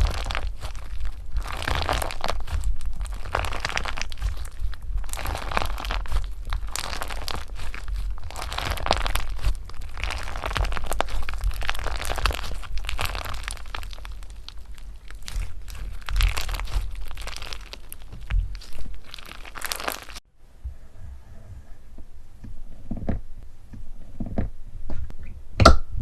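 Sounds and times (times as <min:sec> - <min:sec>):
hands squishing crunchy slime: 0:00.0 - 0:20.2.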